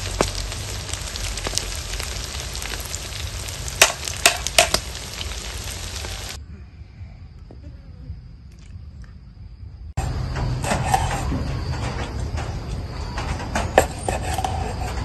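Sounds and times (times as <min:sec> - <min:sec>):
food sizzling in hot oil: 0:00.0 - 0:06.4.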